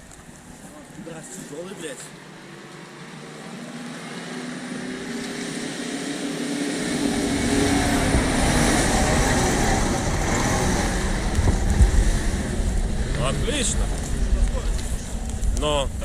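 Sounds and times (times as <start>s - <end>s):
off-road vehicle engine revving: 0.0s - 16.0s
deep rumble: 6.9s - 16.0s.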